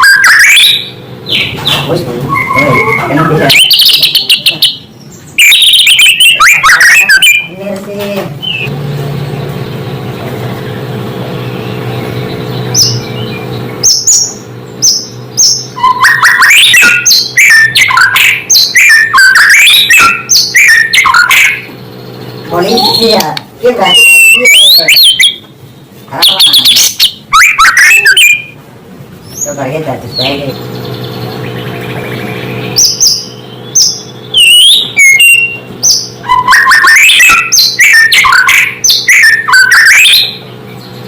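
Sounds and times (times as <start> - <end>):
songbird whistles and trills: 0.0 - 7.5, 11.6 - 21.7, 23.9 - 25.5, 26.2 - 28.6, 31.0 - 40.9.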